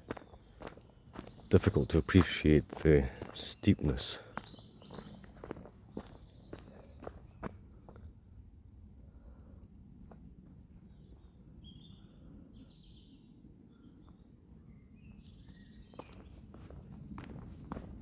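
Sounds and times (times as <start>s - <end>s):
bird chirps: 0.1s - 8.0s
footsteps: 16.0s - 18.0s.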